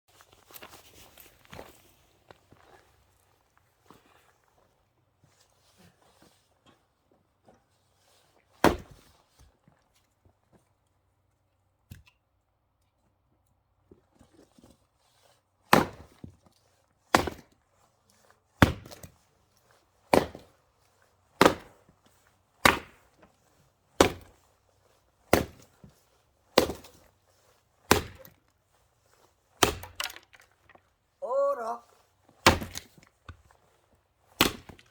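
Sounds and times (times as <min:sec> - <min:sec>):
axe splitting firewood: 0:08.6 - 0:09.1, 0:15.7 - 0:16.4, 0:17.1 - 0:17.6, 0:18.6 - 0:19.2, 0:20.1 - 0:20.5, 0:21.4 - 0:21.8, 0:22.6 - 0:23.2, 0:24.0 - 0:24.5, 0:25.3 - 0:25.9, 0:26.5 - 0:27.1, 0:27.8 - 0:28.5, 0:29.6 - 0:30.8, 0:32.3 - 0:33.6, 0:34.3 - 0:34.9.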